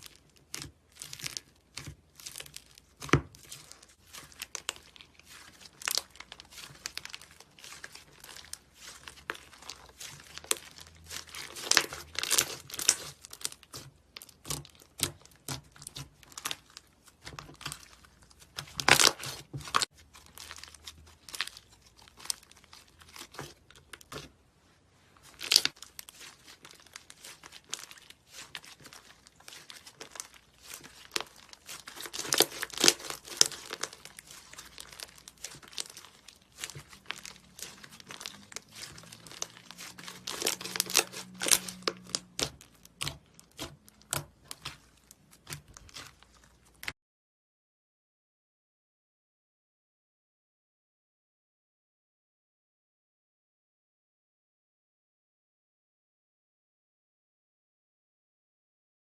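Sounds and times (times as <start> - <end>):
sticky slime crackles and pops: 0.0 - 24.3, 25.2 - 46.9.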